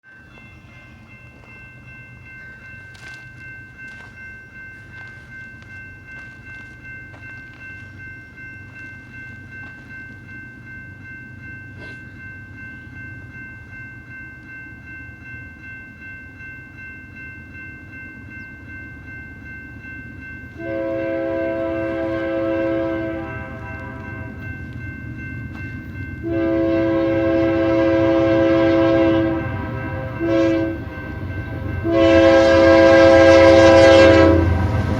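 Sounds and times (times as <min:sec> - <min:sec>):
diesel locomotives rumbling: 0:00.0 - 0:34.9
steady high ringing tone: 0:00.0 - 0:34.9
train horn long blast: 0:20.6 - 0:24.4, 0:26.2 - 0:34.9.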